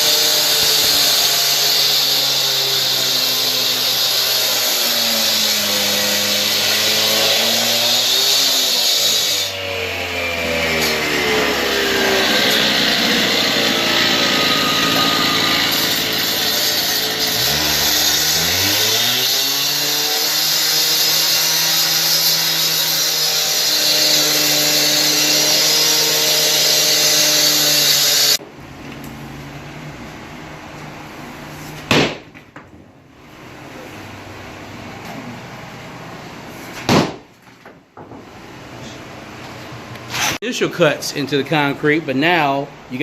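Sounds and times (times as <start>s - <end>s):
power saw grinding concrete: 0.0s - 28.4s
saw motor hum: 0.0s - 28.4s
sharp knock: 31.9s - 32.3s, 36.8s - 37.3s.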